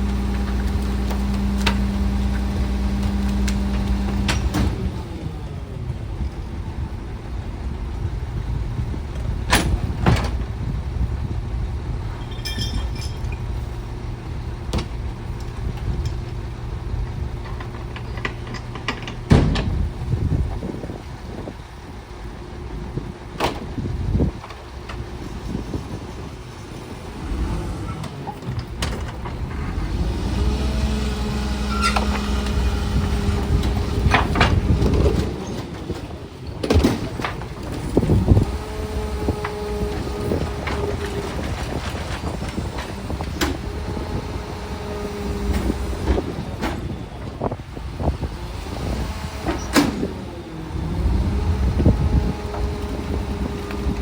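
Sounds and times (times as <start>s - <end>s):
diesel engine running: 0.0s - 54.0s
metallic clanks and bangs: 12.1s - 13.7s, 17.4s - 20.2s.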